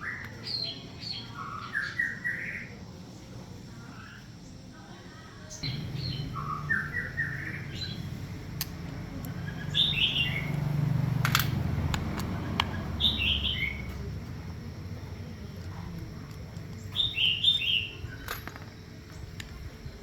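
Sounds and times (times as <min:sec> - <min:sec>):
small bird chirping: 0:05.5 - 0:19.8
low hum: 0:05.6 - 0:17.2
sharp clicks: 0:07.7 - 0:14.2.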